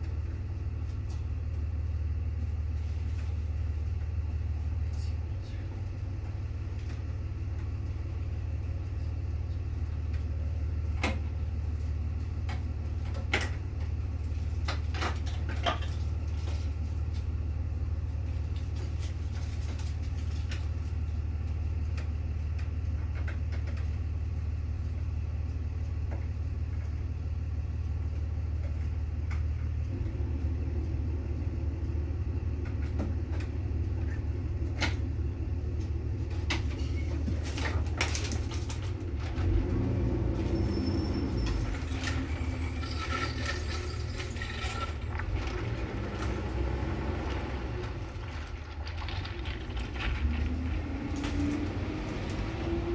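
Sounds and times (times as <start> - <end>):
steady low rumble: 44.4 - 52.9.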